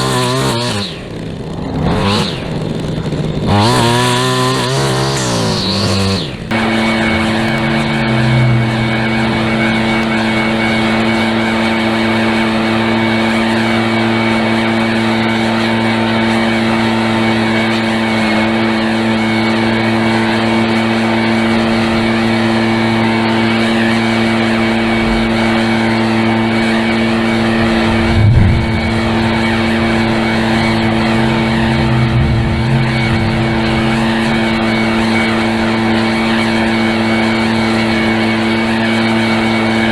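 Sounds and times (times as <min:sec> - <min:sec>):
small gasoline engine running: 0:00.0 - 0:39.9
low thump: 0:26.6 - 0:36.0.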